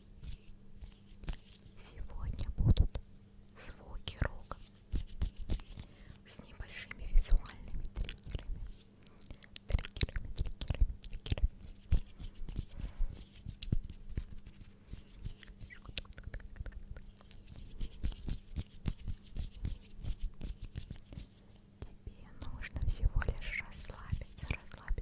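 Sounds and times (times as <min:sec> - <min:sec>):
wet mouth clicks and smacks: 0:06.9 - 0:11.5, 0:15.4 - 0:17.6.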